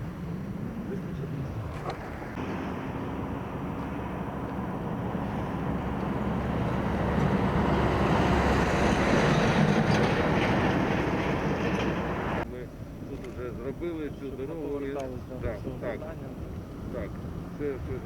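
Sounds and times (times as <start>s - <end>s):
heavy vehicle engine rumbling: 0.0s - 12.5s.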